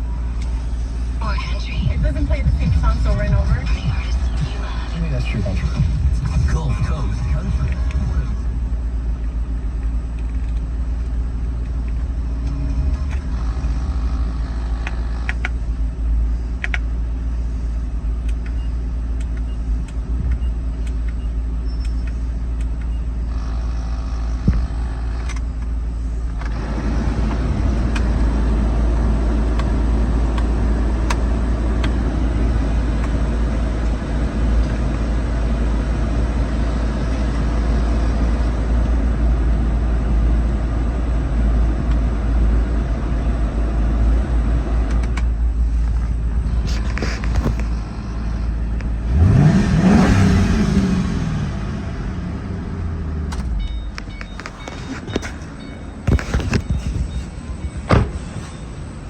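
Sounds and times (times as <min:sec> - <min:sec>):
car engine running: 0:00.0 - 0:59.0.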